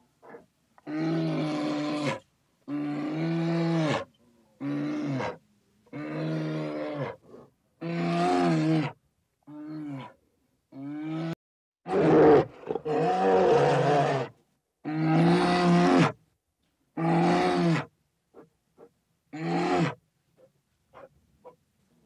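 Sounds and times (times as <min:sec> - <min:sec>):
bear roaring: 0:11.0 - 0:14.3.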